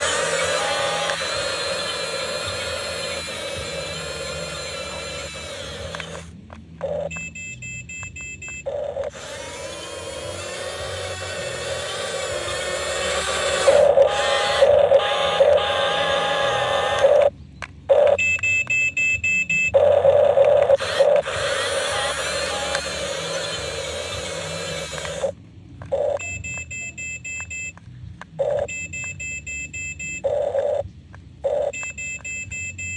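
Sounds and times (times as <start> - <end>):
small electric motors whining: 0.0 - 7.4, 8.6 - 17.3, 17.9 - 18.3, 19.7 - 26.7, 30.2 - 32.8
steady whirring: 0.0 - 7.5, 8.5 - 17.3, 19.6 - 26.6
faint pulsing tones: 0.0 - 7.7
clicks: 0.0 - 18.8, 19.7 - 29.2
high electronic beeps: 28.4 - 30.8, 31.5 - 32.9.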